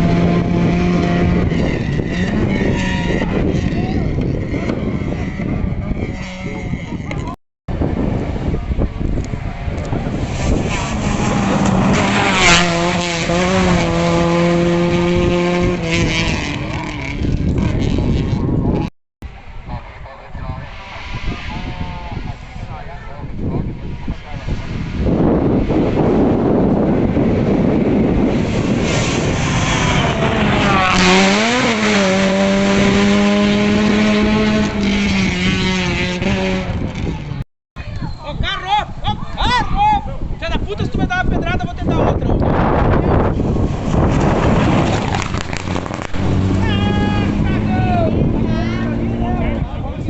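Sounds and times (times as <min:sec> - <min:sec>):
rally car passing at full throttle: 0:00.0 - 0:37.4, 0:42.5 - 0:50.0
rushing noise: 0:19.3 - 0:36.2, 0:42.7 - 0:49.6.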